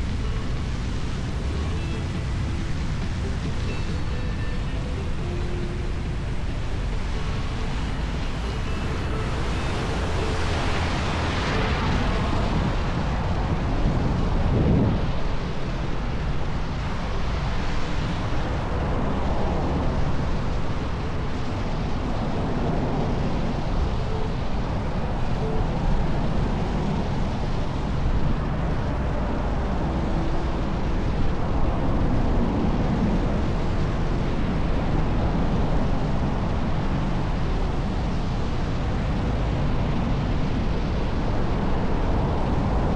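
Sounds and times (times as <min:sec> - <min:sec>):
road noise: 0:00.0 - 0:42.9
wind noise on microphone: 0:00.0 - 0:42.9.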